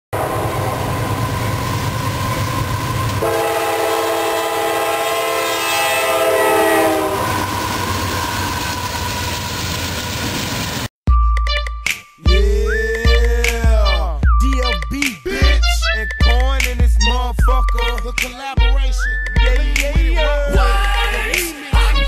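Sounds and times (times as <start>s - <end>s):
locomotive air horn blast: 0.1s - 2.4s, 3.1s - 9.2s, 20.2s - 22.0s
train rumbling past: 0.1s - 10.9s.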